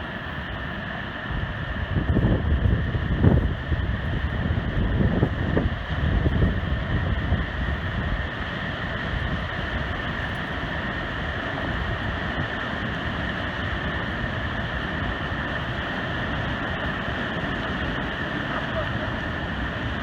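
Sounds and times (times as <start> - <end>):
wind buffeting microphone: 0.0 - 20.0
waterfall roaring: 7.8 - 20.0.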